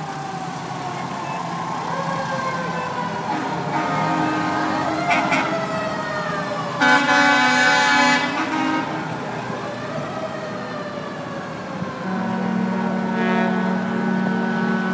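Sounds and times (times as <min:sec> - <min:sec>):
sirens wailing: 0:00.0 - 0:14.9
loud horn blast: 0:03.2 - 0:05.8, 0:06.8 - 0:09.2, 0:11.9 - 0:14.9.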